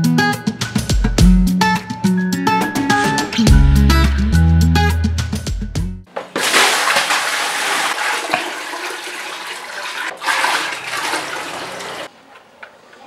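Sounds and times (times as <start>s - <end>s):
water pouring and splashing into basin: 6.3s - 12.1s.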